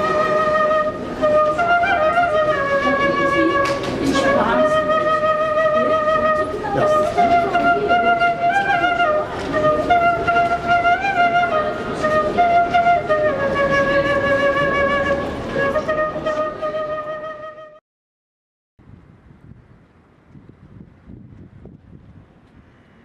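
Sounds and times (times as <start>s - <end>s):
busy background noise: 0.0s - 17.8s
flute-like wind instrument melody: 0.0s - 17.8s.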